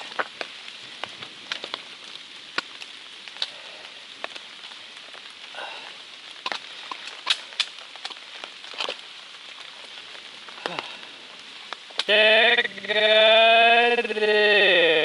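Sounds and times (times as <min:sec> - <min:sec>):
light rain hissing: 0:00.0 - 0:15.0
raindrops tapping on umbrella: 0:00.0 - 0:15.0.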